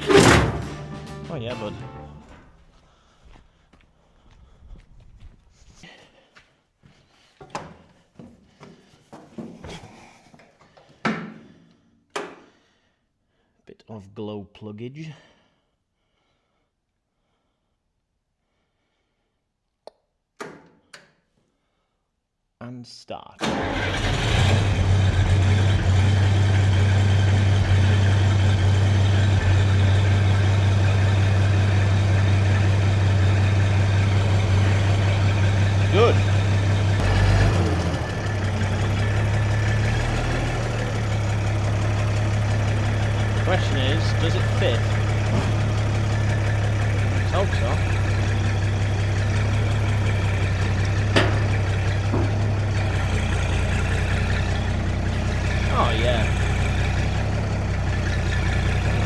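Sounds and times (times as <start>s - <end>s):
diesel engine idling: 23.5s - 59.0s.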